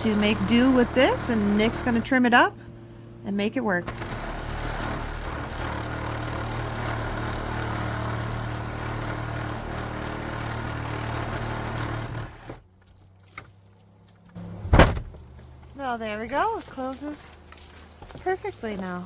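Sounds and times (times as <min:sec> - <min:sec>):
motor humming: 0:00.0 - 0:12.7
door shutting knock: 0:14.6 - 0:15.2.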